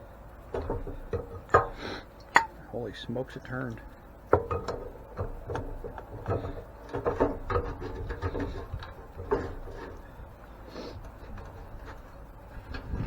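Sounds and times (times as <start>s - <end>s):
seized metal part scraping and creaking: 4.4s - 13.0s.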